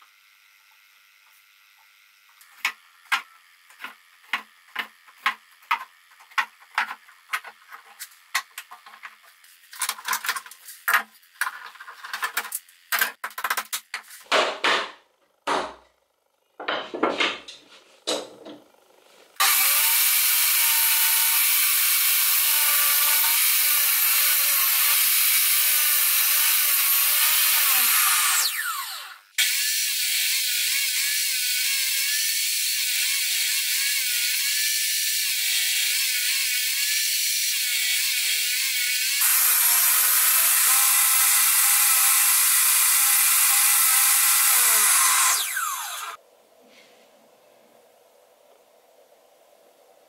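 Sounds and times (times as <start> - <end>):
table saw ripping boards: 2.5 - 15.9, 16.6 - 29.8, 38.4 - 46.2
knocks and clatters: 2.6 - 15.9, 16.6 - 18.7.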